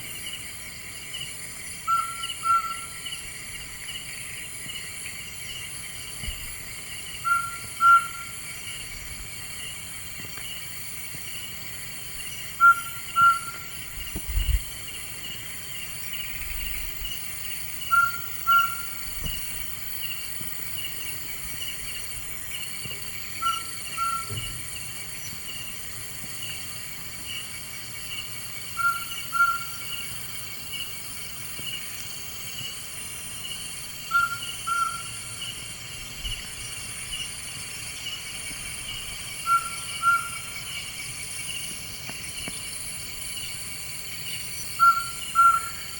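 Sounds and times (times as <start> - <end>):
night bird calling: 1.8 - 3.3, 7.0 - 8.9, 12.2 - 14.6, 15.4 - 25.7, 26.4 - 30.9, 34.0 - 37.2, 38.0 - 41.8, 44.3 - 45.9.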